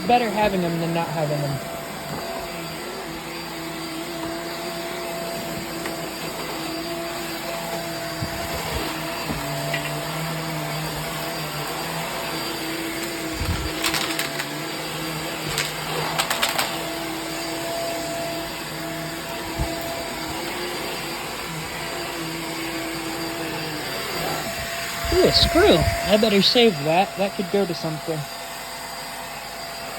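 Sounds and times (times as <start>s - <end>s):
vacuum cleaner running: 0.0s - 29.9s.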